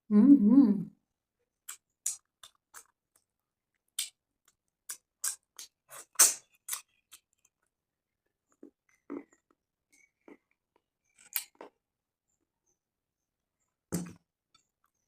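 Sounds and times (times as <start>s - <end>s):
chewing crunches: 1.6s - 7.7s, 8.5s - 11.8s.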